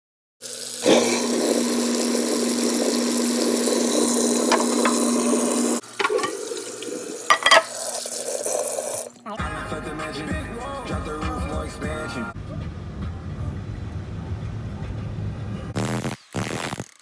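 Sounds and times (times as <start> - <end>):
tap water running into sink: 0.4 - 9.2.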